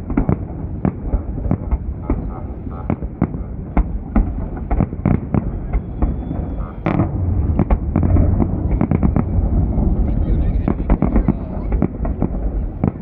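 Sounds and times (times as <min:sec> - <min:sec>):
fireworks bursting: 0:00.0 - 0:13.0
low rumble: 0:03.4 - 0:13.0.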